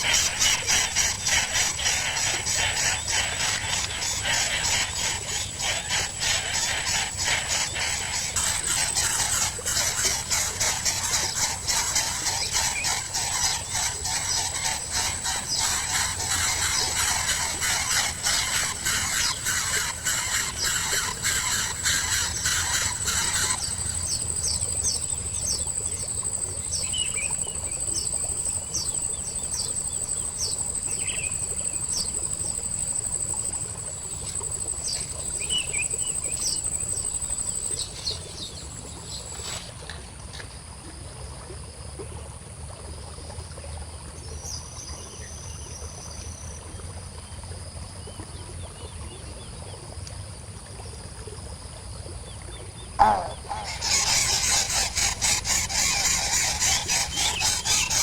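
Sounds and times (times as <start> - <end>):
insects trilling: 0.0 - 39.8, 52.9 - 58.0
bird chirps: 53.0 - 58.0.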